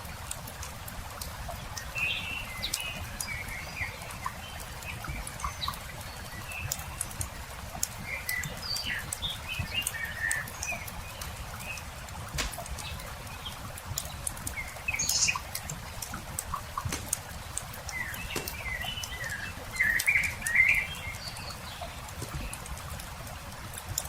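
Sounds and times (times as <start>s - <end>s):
campfire crackling and popping: 0.0s - 24.0s
small birds chirping: 1.3s - 24.0s.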